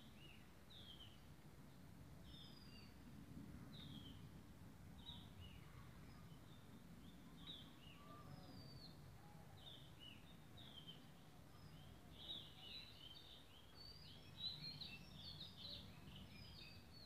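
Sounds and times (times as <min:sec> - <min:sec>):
faint bird chirps: 0:05.0 - 0:17.0.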